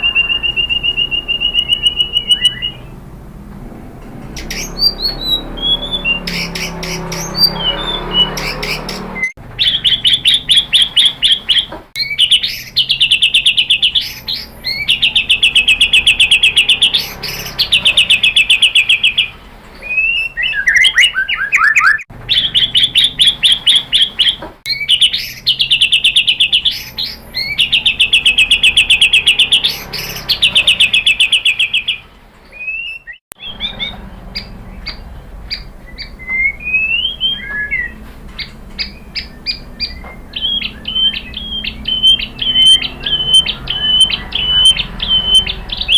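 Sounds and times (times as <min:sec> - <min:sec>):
bird whistled sweeping notes: 0:00.0 - 0:03.0, 0:04.4 - 0:45.9
bird singing rapid trills: 0:00.0 - 0:03.1, 0:04.3 - 0:45.9.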